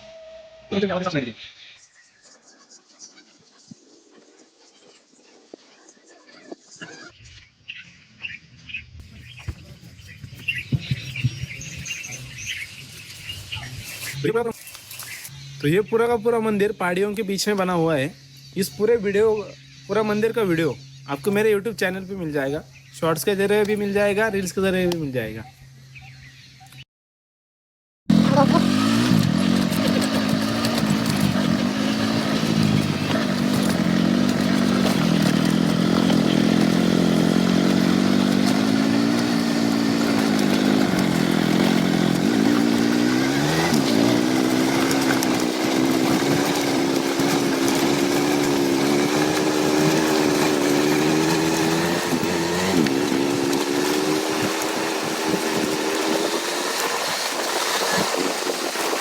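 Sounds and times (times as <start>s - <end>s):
motorcycle engine running: 9.2s - 15.7s, 28.1s - 59.0s.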